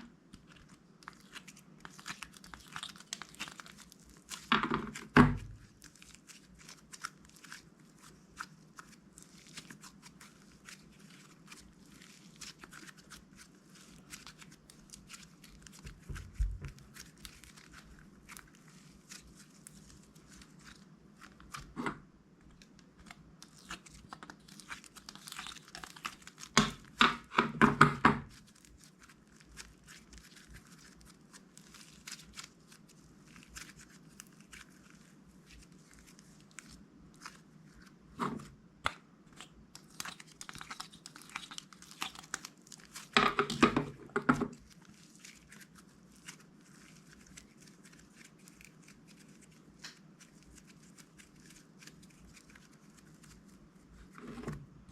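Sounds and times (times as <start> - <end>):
plastic bags crinkling and tearing: 0.4 - 8.2, 22.5 - 27.0, 28.2 - 37.9, 39.4 - 43.9.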